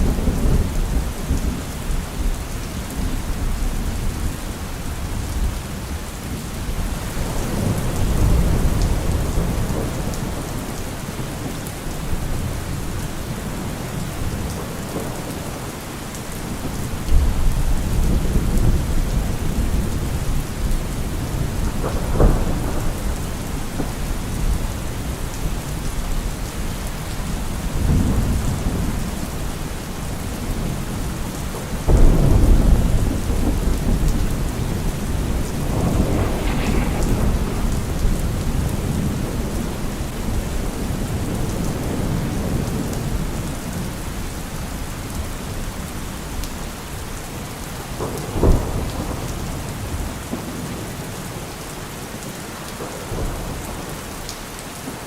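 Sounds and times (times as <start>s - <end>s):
heavy rain on a car roof: 0.0s - 55.0s
thunder rolling: 6.6s - 15.8s, 30.2s - 43.3s.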